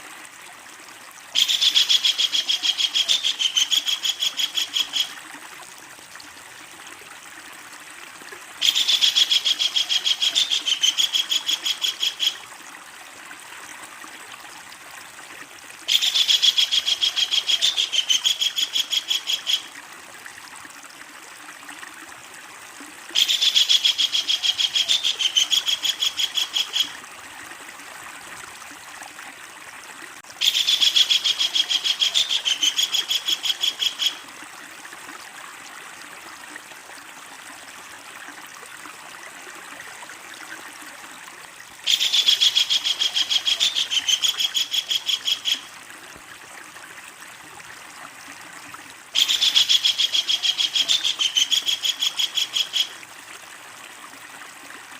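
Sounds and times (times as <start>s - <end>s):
kingfisher cackling call: 1.4s - 5.1s, 23.2s - 26.9s, 30.4s - 34.2s, 41.9s - 45.7s, 49.2s - 52.9s.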